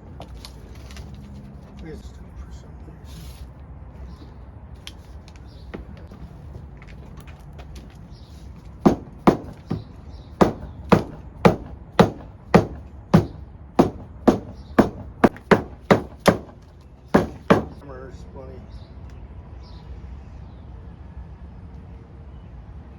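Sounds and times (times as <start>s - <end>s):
hammer blows: 8.7s - 17.8s.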